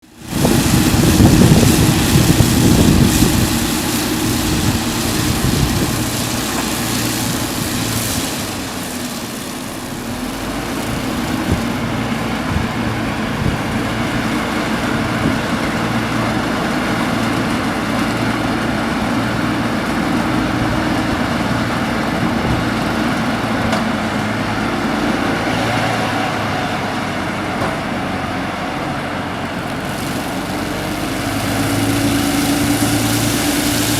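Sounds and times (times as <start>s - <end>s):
baler machine droning: 0.0s - 16.7s.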